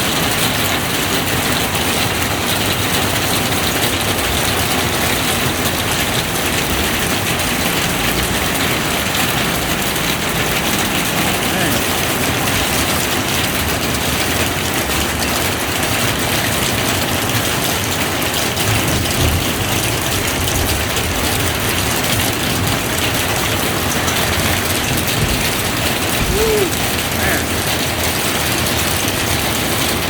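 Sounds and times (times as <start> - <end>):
steady rain hissing: 0.4 - 30.0
low rumbles: 18.5 - 28.7.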